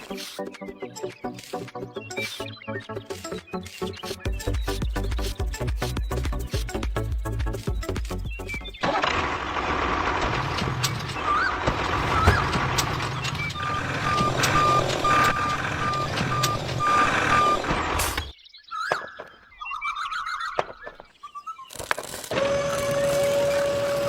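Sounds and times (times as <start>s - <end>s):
heavy vehicle engine running: 8.8s - 18.3s
reversing alarm beeping: 11.0s - 18.3s.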